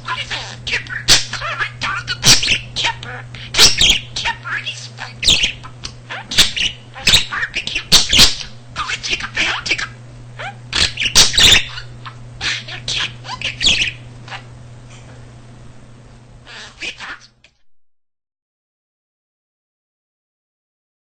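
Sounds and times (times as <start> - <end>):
budgie chattering and warbling: 0.1 - 14.5, 16.5 - 17.4.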